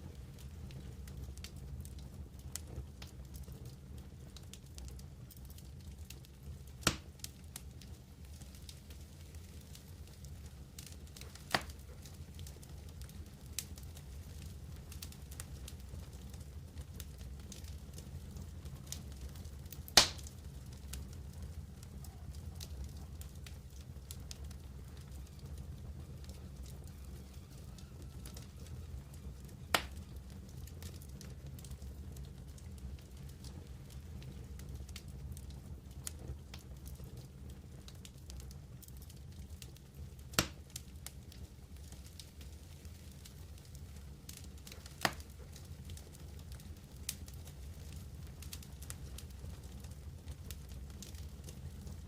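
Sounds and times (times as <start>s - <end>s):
campfire crackling: 0.0s - 52.0s
loud sharp pop: 20.0s - 20.2s.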